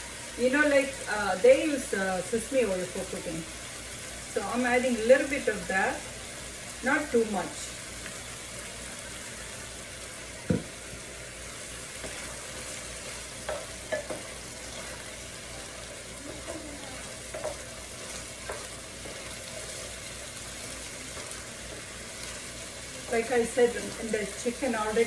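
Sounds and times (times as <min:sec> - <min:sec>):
food sizzling in a skillet: 0:00.0 - 0:25.0.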